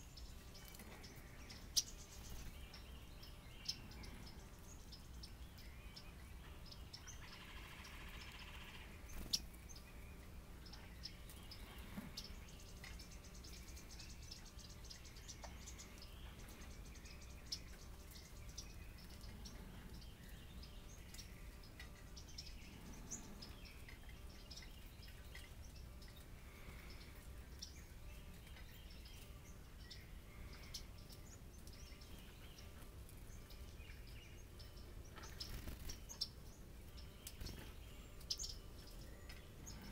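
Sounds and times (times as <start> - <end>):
faint bird chirps: 0.0 - 39.9.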